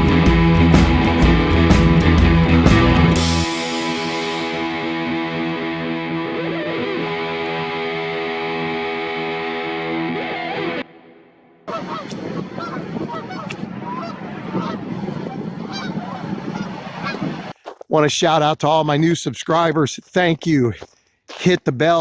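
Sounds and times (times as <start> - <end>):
distorted electric guitar music: 0.0 - 15.7
geese honking: 11.7 - 17.4.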